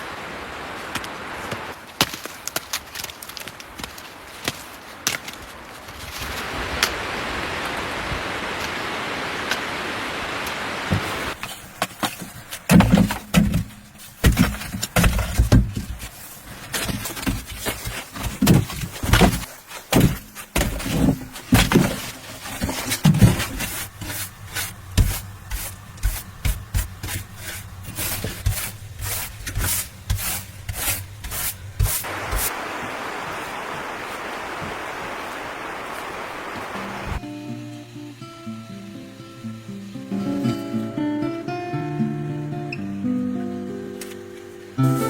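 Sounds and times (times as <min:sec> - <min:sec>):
steady hiss: 0:00.0 - 0:45.0
knocking and scraping on wood: 0:10.9 - 0:32.5.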